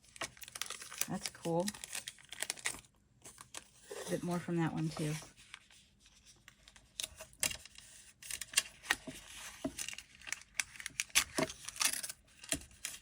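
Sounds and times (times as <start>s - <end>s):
tape crinkling and ripping: 0.0s - 3.7s, 9.6s - 13.0s.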